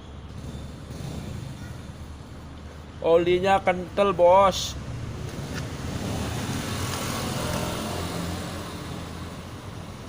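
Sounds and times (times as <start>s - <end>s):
small motorcycle engine running: 0.0s - 2.4s.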